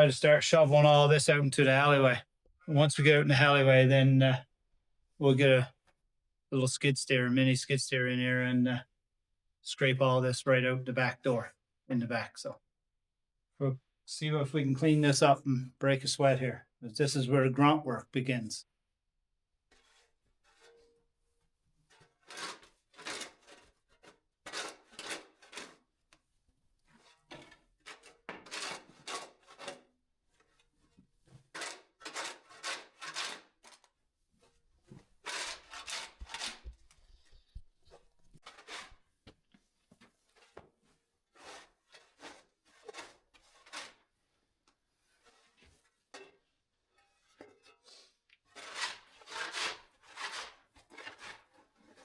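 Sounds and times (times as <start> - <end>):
shovel scraping cement floor: 19.7 - 21.0, 21.9 - 25.9, 26.9 - 39.2, 40.1 - 44.2, 45.0 - 52.0.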